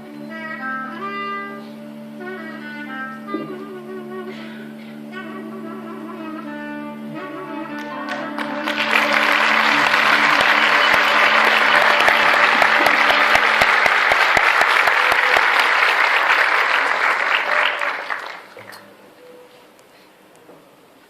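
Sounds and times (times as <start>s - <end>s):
audience applauding: 7.8s - 18.8s.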